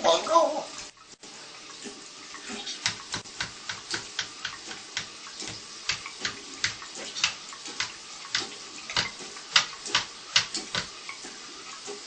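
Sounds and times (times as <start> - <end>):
parrot clicking: 2.8 - 10.9.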